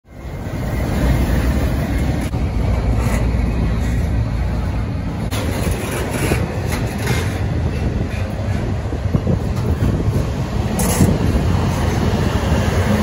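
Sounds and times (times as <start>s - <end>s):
freight train wheels rumbling: 0.0s - 13.0s
train clank: 5.2s - 12.0s.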